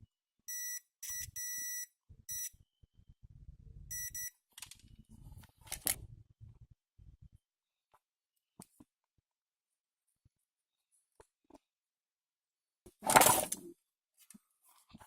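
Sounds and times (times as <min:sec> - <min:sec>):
multimeter continuity beeps: 0:00.5 - 0:02.6, 0:03.9 - 0:04.4.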